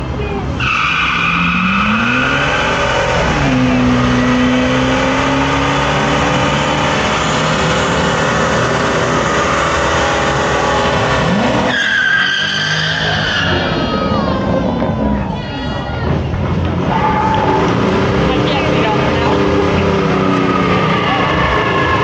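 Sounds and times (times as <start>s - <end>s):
truck engine revving: 0.0s - 22.0s
tyres squealing: 11.3s - 16.2s.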